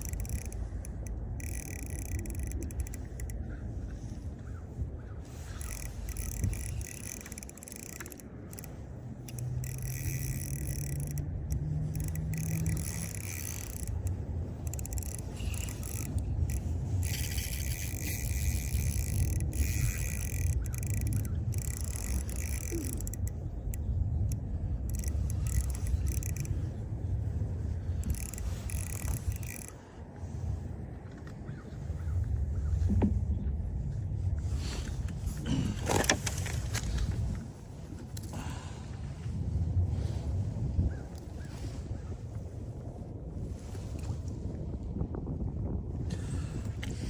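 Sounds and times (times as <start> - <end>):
fishing reel drag buzzing: 0.0 - 30.5
steady low rumble: 0.0 - 47.0.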